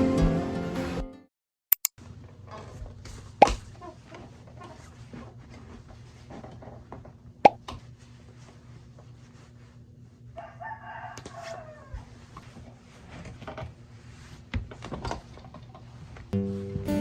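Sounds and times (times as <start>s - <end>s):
guitar music: 0.0s - 1.3s, 16.4s - 17.0s
rooster crowing: 10.4s - 12.1s.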